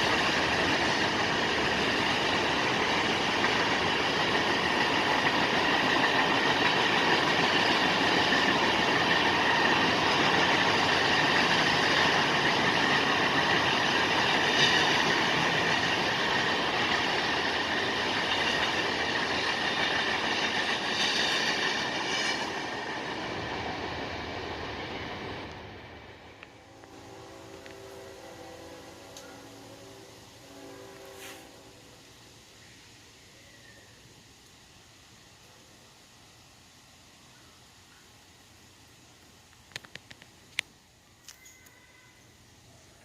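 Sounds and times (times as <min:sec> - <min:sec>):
freight train wheels rattling: 0:00.0 - 0:28.1
faint high ringing: 0:41.1 - 0:42.4.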